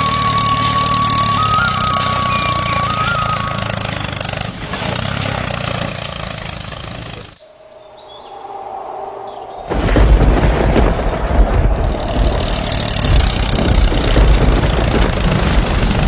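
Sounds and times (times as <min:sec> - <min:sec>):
vehicle engine running: 0:00.0 - 0:07.4, 0:11.4 - 0:16.0
loud noise: 0:08.4 - 0:16.0.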